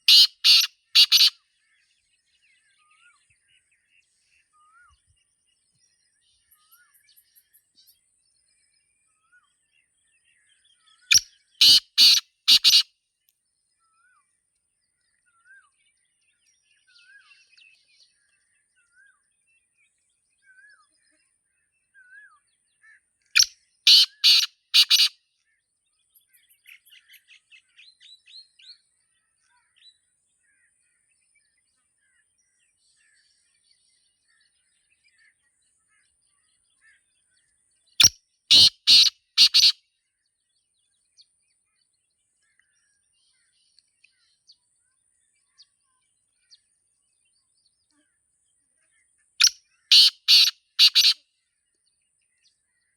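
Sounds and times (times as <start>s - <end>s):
francolin harsh call: 0.0s - 1.3s, 11.6s - 12.8s, 23.9s - 25.1s, 38.5s - 39.7s, 49.9s - 51.2s
small birds chirping and whistling: 0.0s - 1.4s, 10.8s - 12.8s, 23.4s - 25.1s, 38.0s - 39.8s, 49.4s - 51.2s.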